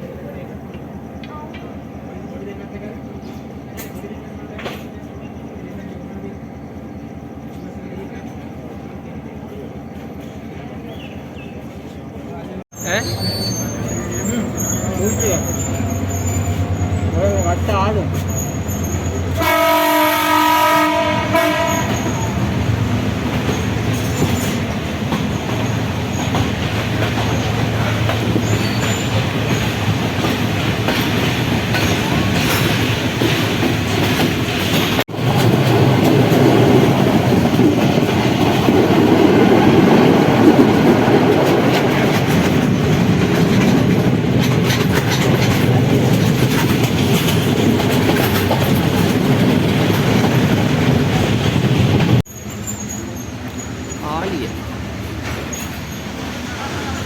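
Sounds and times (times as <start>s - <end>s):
train rumbling: 0.0s - 57.0s
train horn: 19.3s - 22.4s
wheels clattering over rails: 21.4s - 56.3s.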